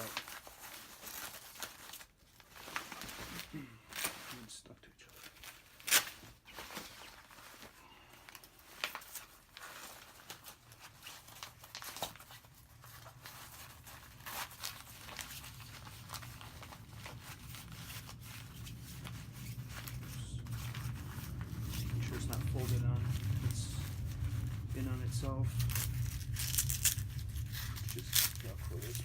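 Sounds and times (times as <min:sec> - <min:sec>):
fabric rustling and scraping: 0:00.0 - 0:04.5, 0:05.1 - 0:29.0
fabric rasps: 0:05.3 - 0:29.0
low hum: 0:12.2 - 0:29.0.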